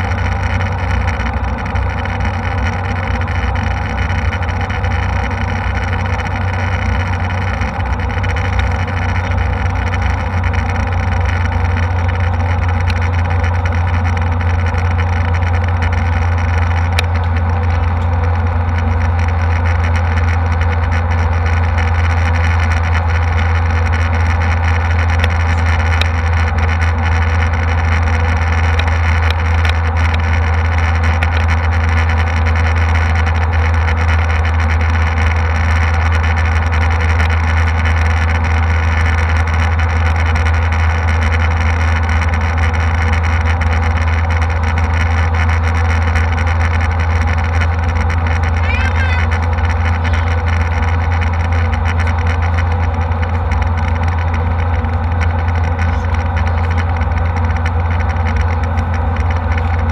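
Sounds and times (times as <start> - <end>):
jet airliner cabin drone: 0.0 - 59.9.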